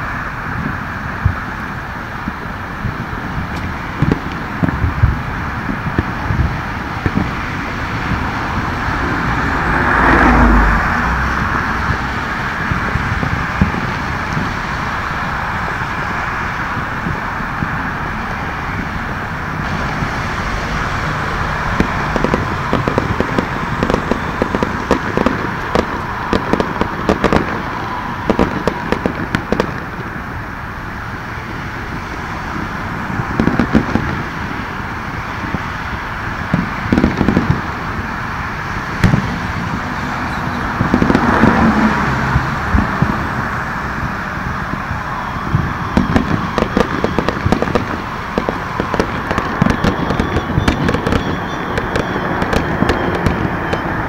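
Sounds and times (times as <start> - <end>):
distant fireworks popping and crackling: 0.0 - 54.0
traffic hiss: 0.0 - 54.0.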